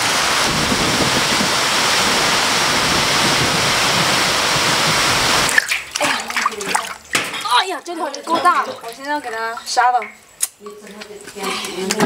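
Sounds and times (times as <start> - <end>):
heavy rain on pavement: 0.0 - 6.4.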